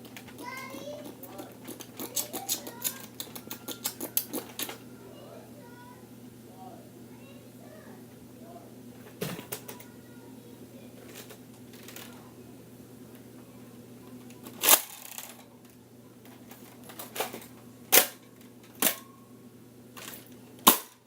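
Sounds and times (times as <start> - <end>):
objects clicking and knocking: 0.0 - 4.8
faint steady hum: 0.0 - 21.0.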